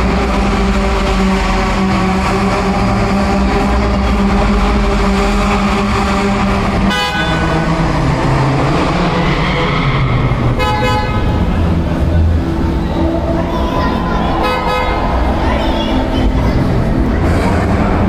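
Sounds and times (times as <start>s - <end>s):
car engines running: 0.0s - 18.0s
car horn toots: 3.6s - 7.9s, 10.5s - 11.5s, 14.4s - 15.0s.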